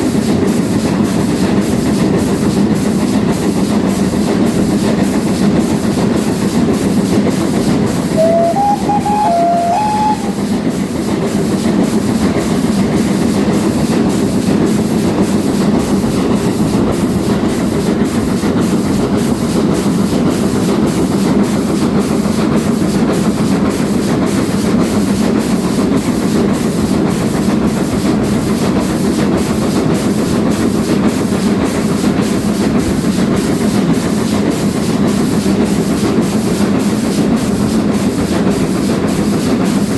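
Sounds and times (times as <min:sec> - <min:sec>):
steam train rumbling: 0:00.0 - 0:39.9
train whistle: 0:08.1 - 0:10.6.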